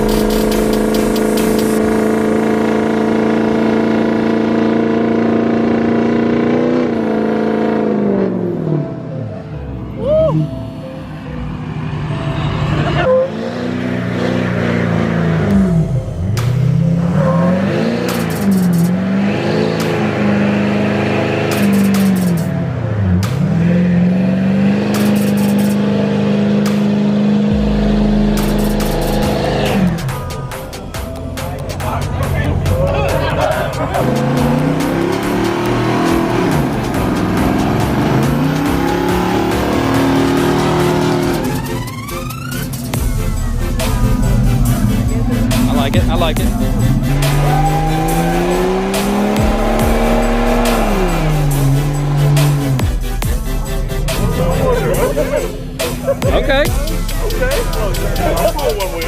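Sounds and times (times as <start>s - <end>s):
truck engine revving: 0.0s - 59.0s.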